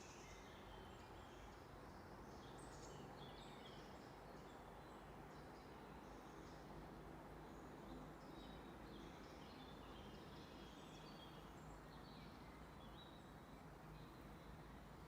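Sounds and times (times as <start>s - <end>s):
low background hiss: 0.0s - 15.0s.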